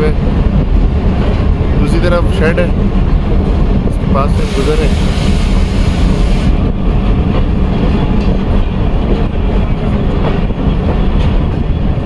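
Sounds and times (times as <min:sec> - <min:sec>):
train coaches rumbling on rails: 0:00.0 - 0:12.0
hiss: 0:04.4 - 0:06.5.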